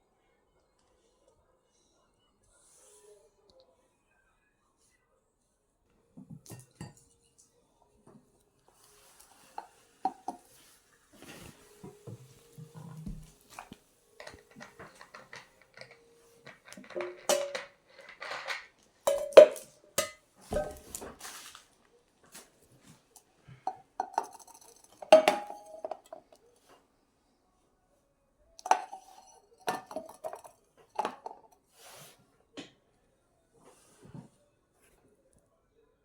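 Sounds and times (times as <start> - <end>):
dishes and cutlery clattering: 9.2 - 10.6, 11.2 - 21.4, 23.5 - 26.3, 28.6 - 31.7.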